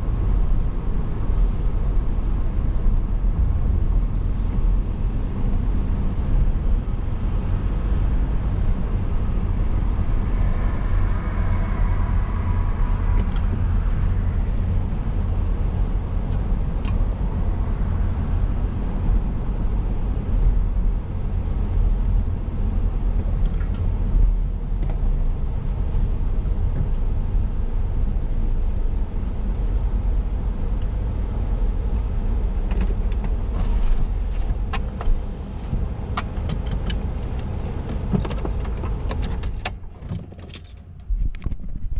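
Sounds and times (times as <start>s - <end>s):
car road noise rumble: 0.0s - 41.9s.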